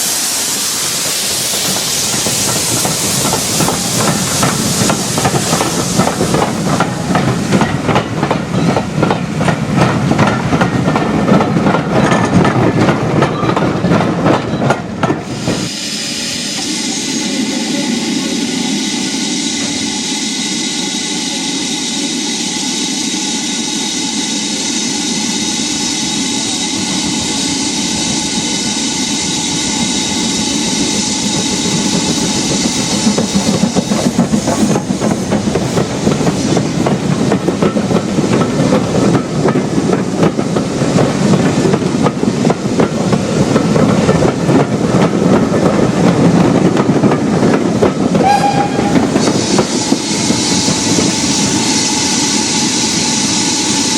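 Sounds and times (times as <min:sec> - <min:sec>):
steam train passing: 0:00.0 - 0:53.9.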